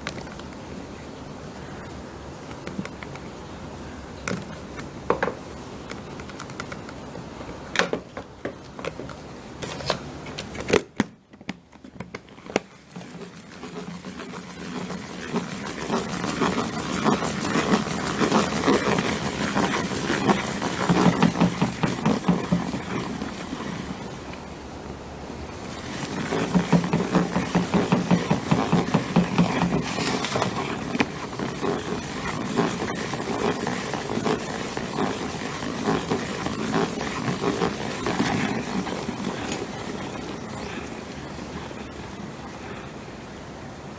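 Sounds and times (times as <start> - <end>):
salad spinner whirring rattle: 12.6 - 24.6, 25.4 - 42.8.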